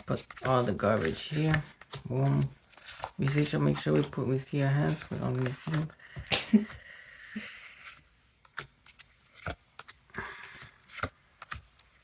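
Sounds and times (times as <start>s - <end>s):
trading cards rustling: 0.0s - 12.0s
cards clicking: 0.2s - 5.9s, 8.4s - 12.0s.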